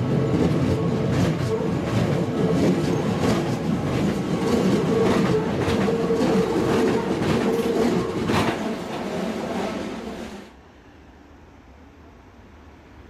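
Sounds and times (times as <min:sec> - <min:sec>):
train running noise: 0:00.0 - 0:10.7
wheels clicking over rail joints: 0:00.7 - 0:09.8.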